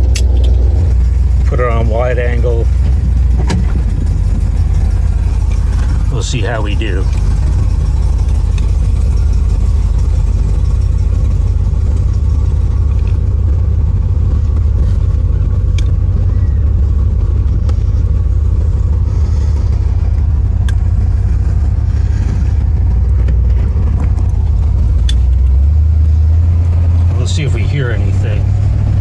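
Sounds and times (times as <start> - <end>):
car engine rumble: 0.0 - 29.0
road noise: 0.0 - 29.0
faint ticks: 17.7 - 27.2.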